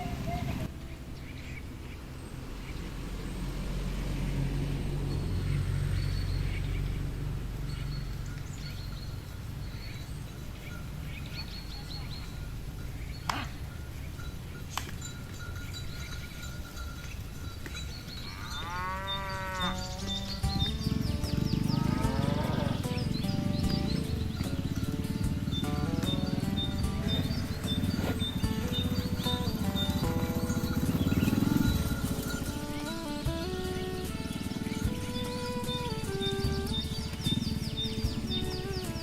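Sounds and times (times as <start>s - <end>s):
cow mooing: 18.2s - 33.2s.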